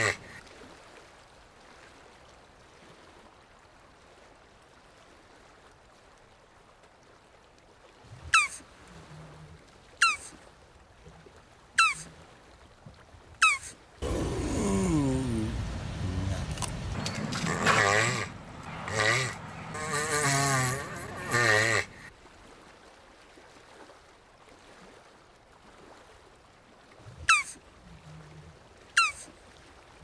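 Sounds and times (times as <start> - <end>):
tortoise calling: 0.0 - 0.4, 8.3 - 8.6, 10.0 - 10.3, 11.8 - 12.1, 13.4 - 22.1, 27.3 - 27.6, 29.0 - 29.3.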